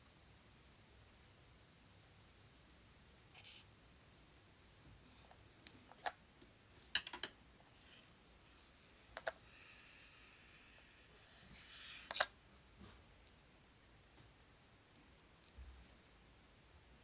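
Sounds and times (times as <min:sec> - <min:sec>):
faint high hiss: 0:00.0 - 0:17.0
small objects clicking and tapping: 0:05.6 - 0:07.4.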